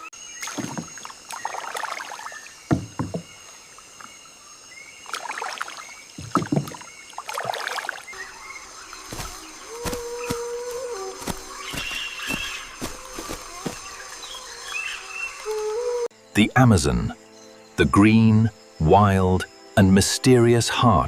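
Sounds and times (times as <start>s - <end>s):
water splashing in strokes: 0.4s - 2.9s, 5.0s - 8.2s.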